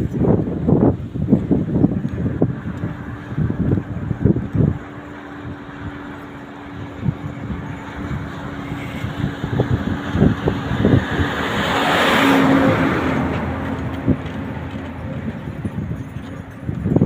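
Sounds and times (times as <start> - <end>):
diesel truck engine humming: 0.0 - 17.0
rush of noise: 0.0 - 17.0
knocks and rattles: 13.1 - 17.0.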